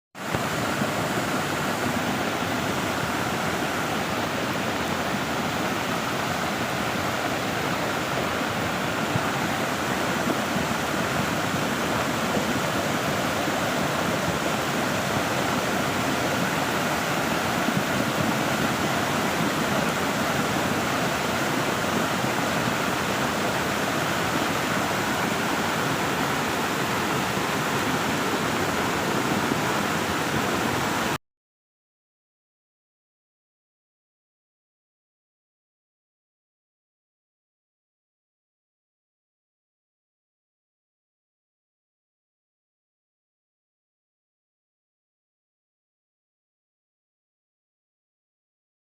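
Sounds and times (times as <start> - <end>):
heavy rain pouring: 0.3 - 31.2.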